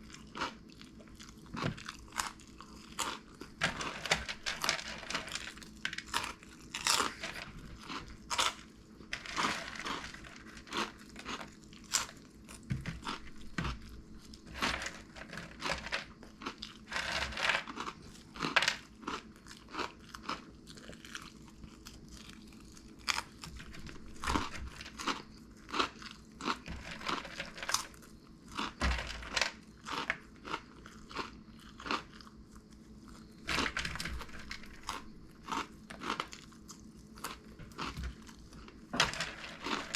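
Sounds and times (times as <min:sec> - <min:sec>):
crunchy snacks being chewed: 0:00.0 - 0:39.9.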